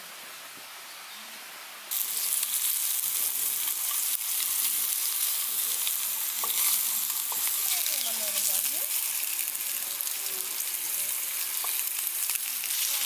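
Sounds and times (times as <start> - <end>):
meat sizzling in a frying pan: 1.9 - 13.0
metal utensil clicks and scrapes: 5.8 - 7.7.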